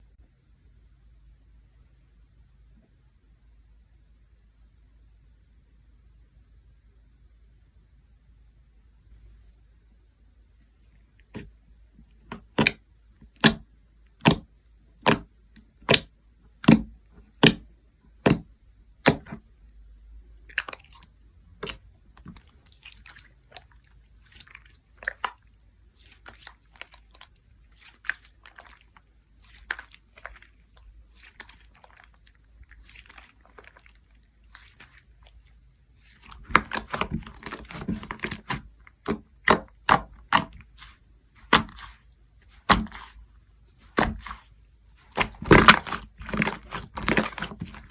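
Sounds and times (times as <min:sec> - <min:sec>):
slime crackling and squishing: 0:11.2 - 0:19.7, 0:20.4 - 0:47.9.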